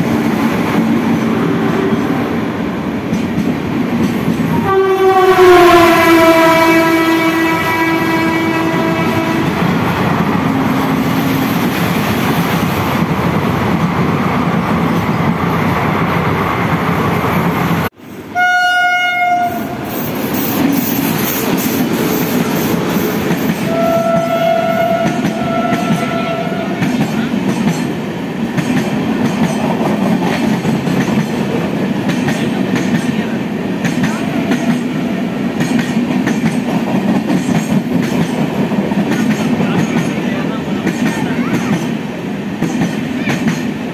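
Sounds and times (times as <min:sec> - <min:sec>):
train wheels rumbling and rattling: 0:00.0 - 0:18.2, 0:19.4 - 0:43.9
train horn blasts: 0:04.5 - 0:09.8, 0:18.3 - 0:19.8, 0:23.6 - 0:26.9.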